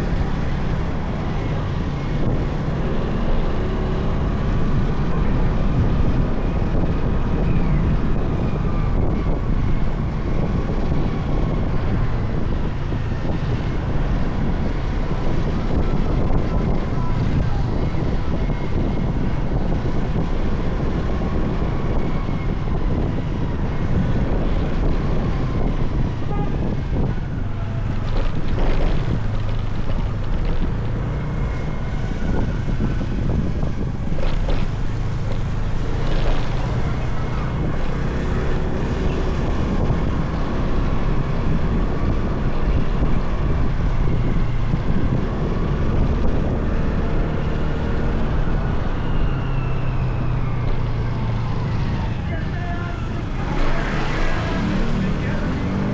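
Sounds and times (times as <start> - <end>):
wind rushing over microphone: 0.0 - 55.9
motorcycle engine running: 26.0 - 41.6.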